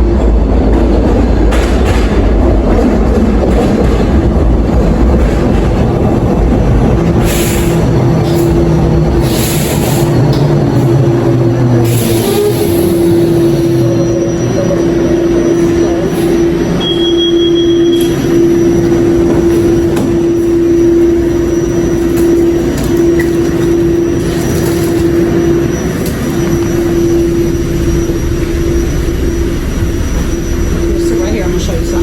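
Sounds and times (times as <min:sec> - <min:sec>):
subway train rumbling underground: 0:00.0 - 0:32.0
short high beep: 0:13.6 - 0:24.1.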